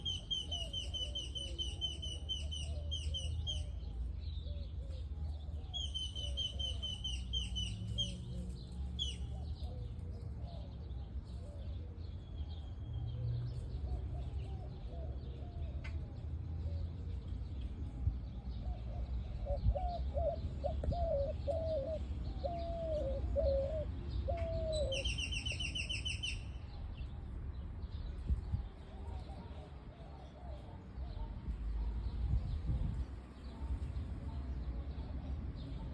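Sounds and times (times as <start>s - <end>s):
lower hooked bird calls: 0.0s - 3.8s, 18.7s - 26.8s
bird chirping trill: 5.7s - 8.3s, 19.5s - 27.1s.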